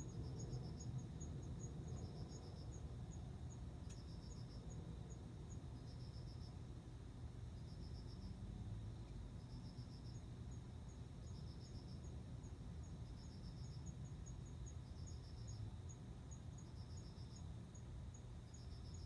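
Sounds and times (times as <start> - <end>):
high insect chirping: 0.0 - 6.6, 7.4 - 8.4, 9.4 - 19.0
cricket chirping: 0.0 - 19.0.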